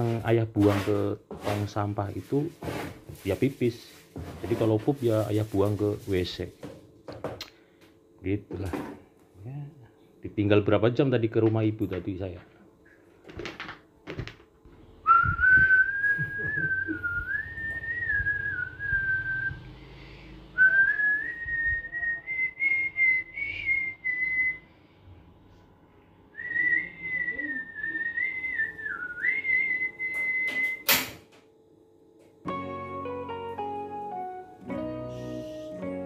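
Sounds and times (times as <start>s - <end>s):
man whistling a tune: 15.0s - 19.7s, 20.6s - 24.6s, 26.4s - 30.9s.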